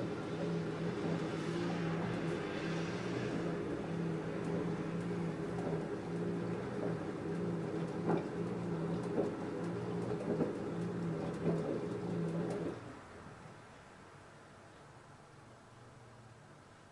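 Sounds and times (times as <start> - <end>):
soft knocks of tumbling laundry: 0.0 - 13.2
washing machine motor hum: 0.0 - 13.6.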